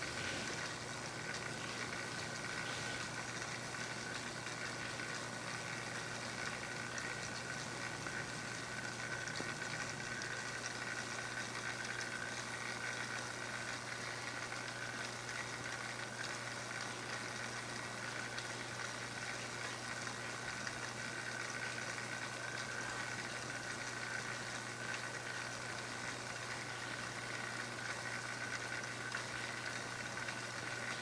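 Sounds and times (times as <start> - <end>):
even hiss: 0.0 - 3.2
small motor humming and whining: 0.0 - 7.2.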